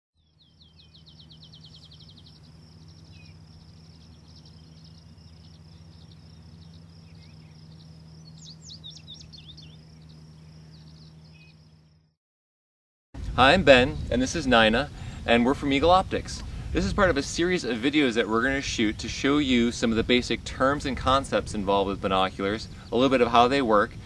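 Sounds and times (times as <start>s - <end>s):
fast trill of high chirps: 0.2s - 11.9s
birds chirping: 0.2s - 12.2s, 13.4s - 24.0s
steady low hum: 0.2s - 12.2s, 13.2s - 24.0s.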